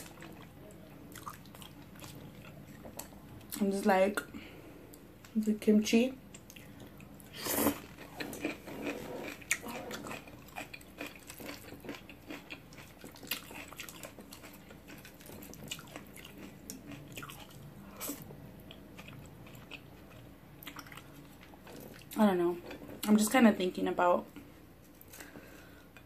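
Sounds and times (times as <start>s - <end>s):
chewing noodles with wet smacks: 0.0s - 3.6s, 6.3s - 23.0s.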